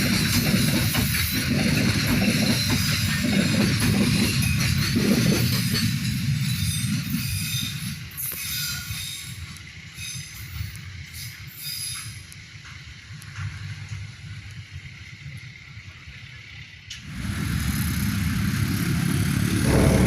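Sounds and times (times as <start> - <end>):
wheels squealing and clattering: 0.0 - 12.9, 18.5 - 20.0
train rumbling past: 0.0 - 15.0, 16.2 - 20.0.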